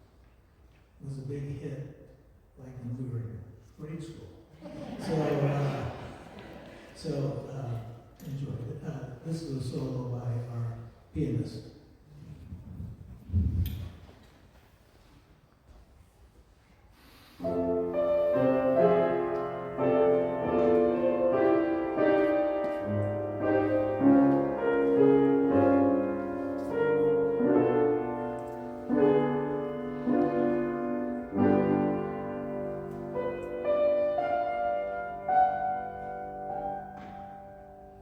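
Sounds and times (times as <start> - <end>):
slow solo piano piece: 17.4 - 38.0.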